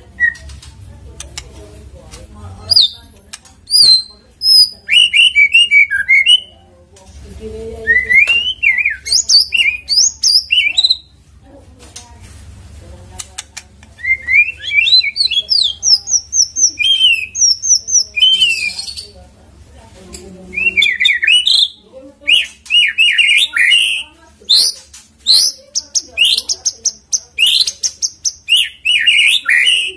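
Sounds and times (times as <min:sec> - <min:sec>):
bird singing whistled phrases: 0:07.9 - 0:11.0, 0:14.0 - 0:19.0, 0:20.6 - 0:25.6, 0:27.4 - 0:29.9.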